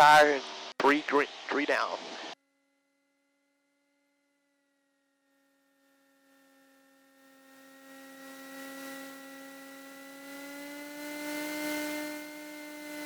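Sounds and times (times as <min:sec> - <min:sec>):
aircraft engines droning: 0:00.0 - 0:02.4, 0:05.8 - 0:13.0.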